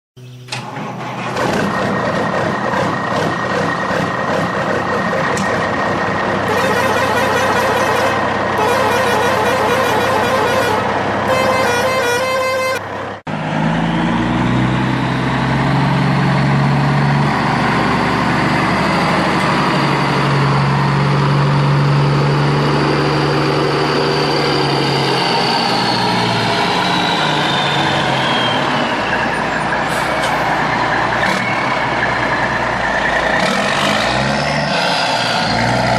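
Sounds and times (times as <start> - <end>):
low engine drone: 0.2 - 35.9
truck horn tones: 6.4 - 13.0.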